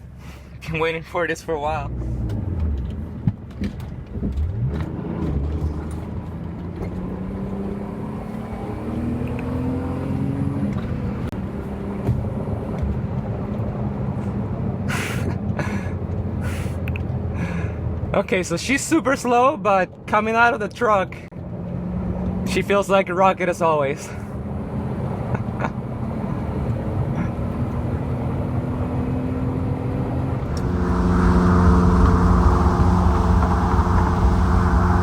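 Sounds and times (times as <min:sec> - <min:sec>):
car engine accelerating hard: 0:04.1 - 0:13.9, 0:24.4 - 0:35.0.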